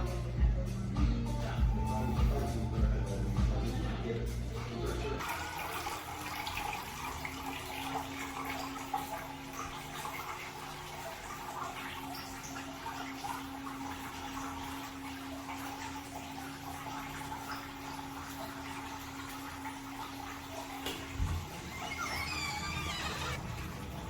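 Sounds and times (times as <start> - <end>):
fountain water bubbling and gurgling: 5.2 - 24.0.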